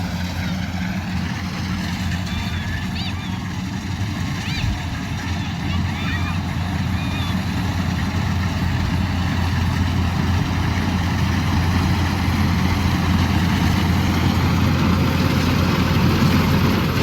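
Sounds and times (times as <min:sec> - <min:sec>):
diesel engine running under load: 0:00.0 - 0:17.0.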